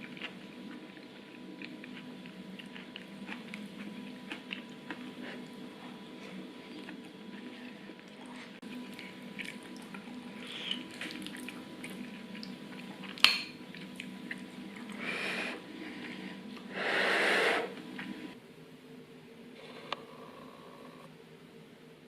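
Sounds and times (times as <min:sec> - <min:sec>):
steady low hum: 0:00.0 - 0:22.0
dishes and cutlery clinking: 0:13.2 - 0:13.6.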